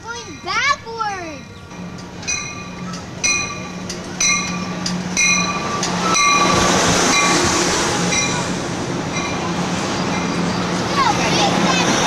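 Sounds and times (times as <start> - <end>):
bell ringing: 0.0 - 7.5, 8.1 - 8.5
train cars rushing by: 0.0 - 12.0.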